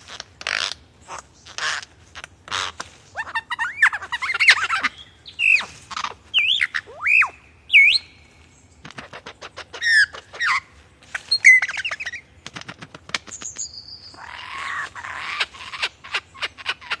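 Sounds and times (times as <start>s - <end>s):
bird whistling and warbling: 3.2s - 8.2s, 9.0s - 12.3s.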